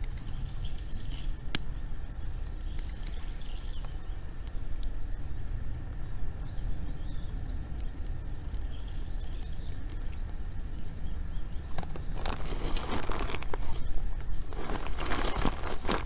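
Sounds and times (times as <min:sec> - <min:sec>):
bonfire crackling and snapping: 0:00.0 - 0:16.0
wind rumble on microphone: 0:00.0 - 0:16.0
crinkling rustling noise: 0:09.3 - 0:16.0.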